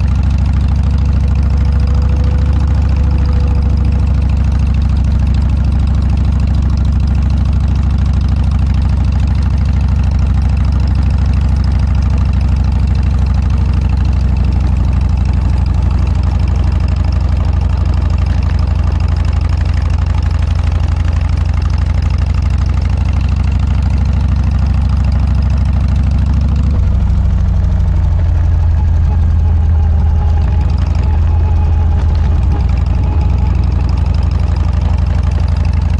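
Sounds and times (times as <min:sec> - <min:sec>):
motorcycle engine deep pulsing exhaust: 0:00.0 - 0:35.9.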